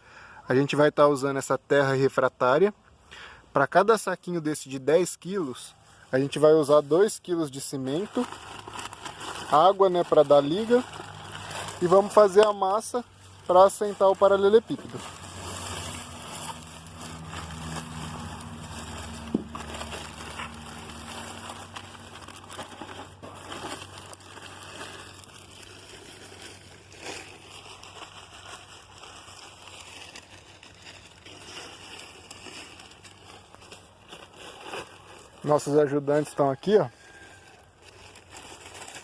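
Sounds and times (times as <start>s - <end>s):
mortar scraping and sloshing: 14.9s - 23.8s.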